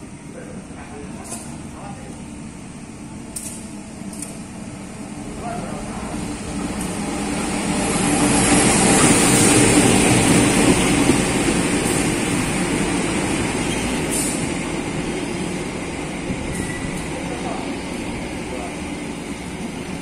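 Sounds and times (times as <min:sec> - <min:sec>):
diesel locomotive passing: 0:00.0 - 0:20.0.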